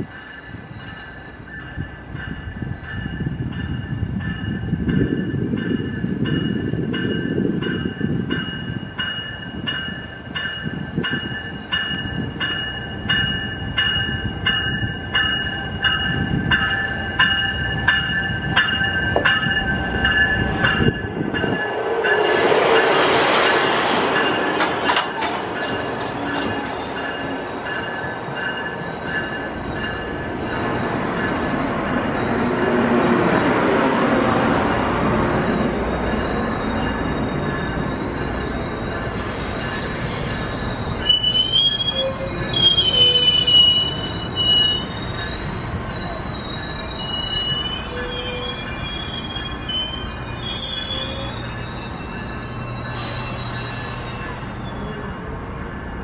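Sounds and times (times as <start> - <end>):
diesel locomotive rumbling past: 0.0 - 56.0
locomotive bell ringing: 0.0 - 56.0
wheels and brakes squealing: 15.2 - 56.0.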